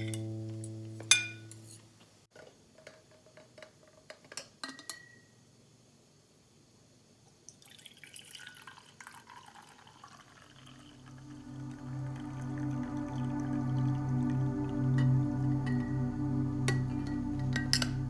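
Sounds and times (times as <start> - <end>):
glassware clinking: 1.1 - 1.8.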